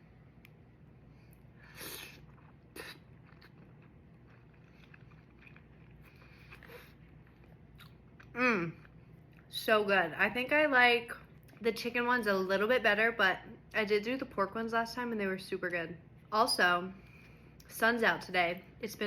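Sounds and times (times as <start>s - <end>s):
person chewing: 0.4s - 9.5s.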